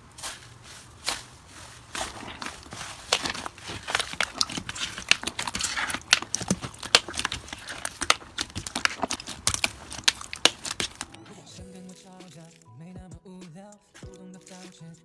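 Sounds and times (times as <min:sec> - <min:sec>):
slime clicking and popping: 0:02.1 - 0:11.2.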